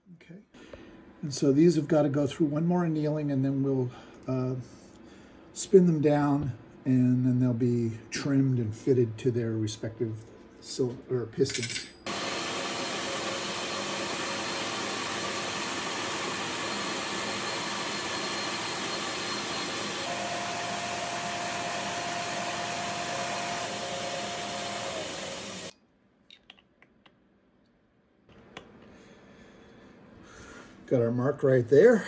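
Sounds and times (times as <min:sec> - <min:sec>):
gas torch flame hissing: 0:12.1 - 0:25.7.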